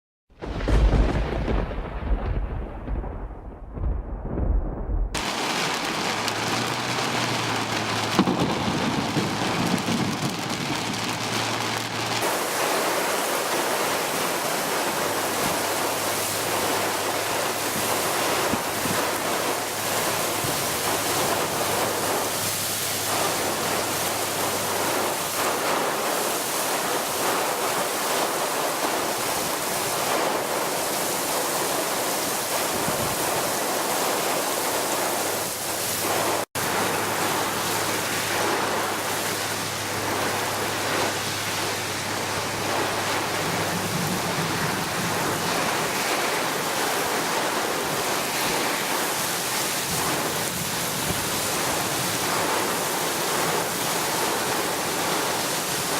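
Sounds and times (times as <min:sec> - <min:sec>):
thunder rumble: 0:00.3 - 0:26.1, 0:36.0 - 0:46.3
heavy rain pouring: 0:00.3 - 0:55.9.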